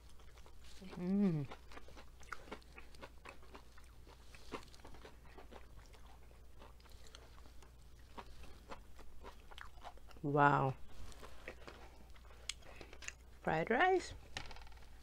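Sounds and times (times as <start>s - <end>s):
crunching and chewing fried food: 0.0s - 13.4s
person humming: 0.8s - 1.5s.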